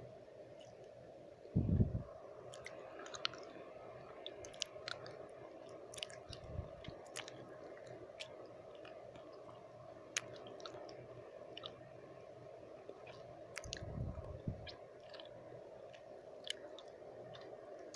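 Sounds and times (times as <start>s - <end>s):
lip smacks and tongue clicks: 2.5s - 11.8s, 12.9s - 17.9s.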